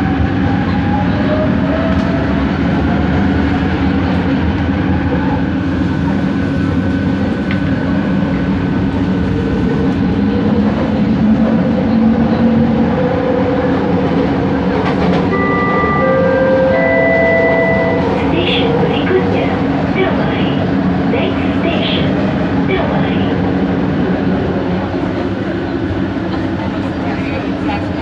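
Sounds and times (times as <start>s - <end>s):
train wheels rumbling on track: 0.0s - 28.0s.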